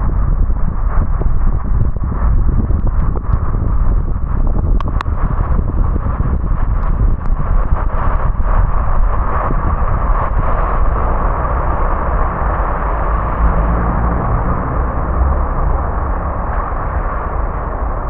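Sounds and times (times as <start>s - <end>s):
low road rumble: 0.0s - 18.0s
tyres hissing on wet road: 9.2s - 18.0s.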